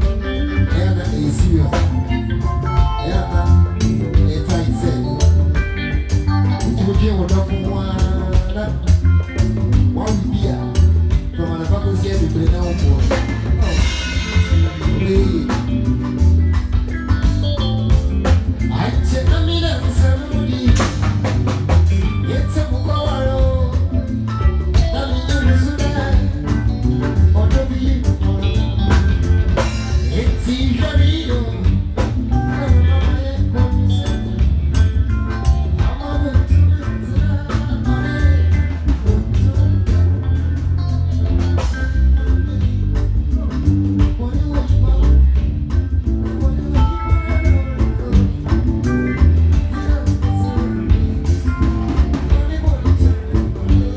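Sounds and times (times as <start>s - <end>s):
live band playing: 0.0s - 53.9s
person singing: 0.0s - 53.9s.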